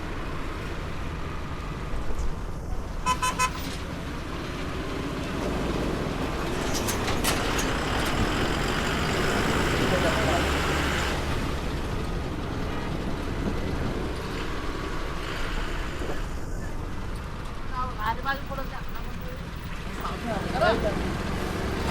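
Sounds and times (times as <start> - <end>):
road traffic rumbling: 0.0 - 21.9
vehicle horn beeps: 3.0 - 3.7.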